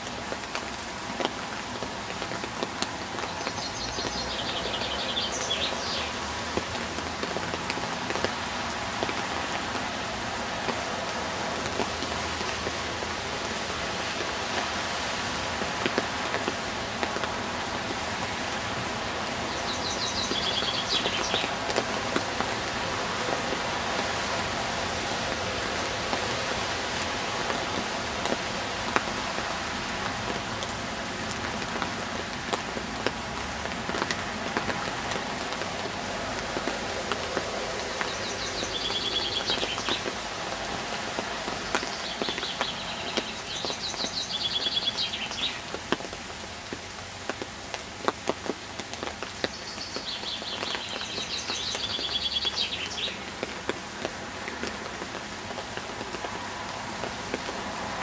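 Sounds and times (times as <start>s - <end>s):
steady rain on foliage: 0.0s - 58.0s.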